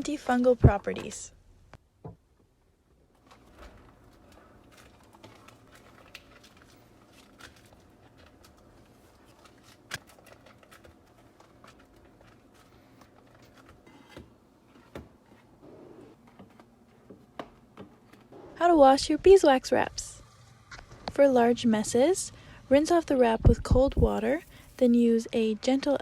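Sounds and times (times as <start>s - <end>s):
wax wrap crinkling and rustling: 3.2s - 13.8s, 24.0s - 24.8s.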